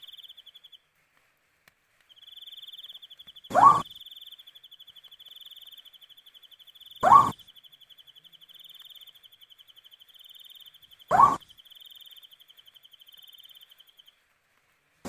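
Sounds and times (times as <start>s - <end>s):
owl harsh rising call: 3.5s - 3.9s, 7.0s - 7.4s, 11.1s - 11.4s.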